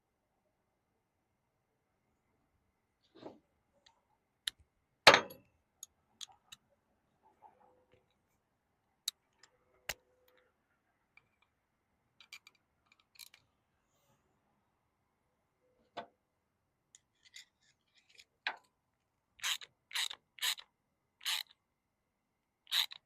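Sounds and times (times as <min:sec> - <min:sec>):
metal parts clicking and clinking: 0:12.2 - 0:13.4.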